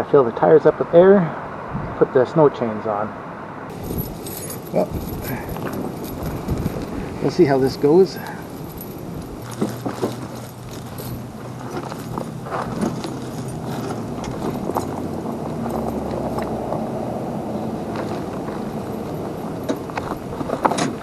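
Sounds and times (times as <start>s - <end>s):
metal chain links clinking: 3.7s - 16.7s, 17.6s - 21.0s
steady low hum: 3.7s - 21.0s.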